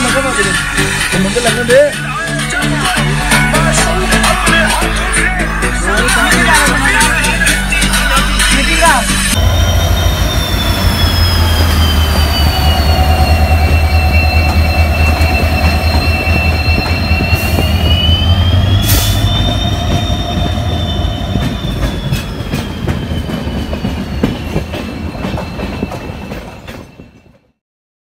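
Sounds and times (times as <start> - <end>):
diesel locomotive engine hum: 0.0 - 27.5
high metallic whine: 9.4 - 25.0.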